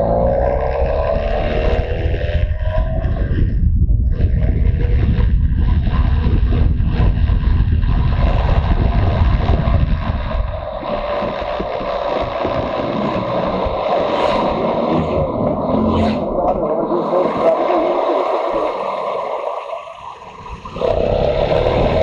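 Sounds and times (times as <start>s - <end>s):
motorcycle engine running: 0.0s - 18.6s, 20.4s - 22.0s
wind buffeting microphone: 1.4s - 18.6s.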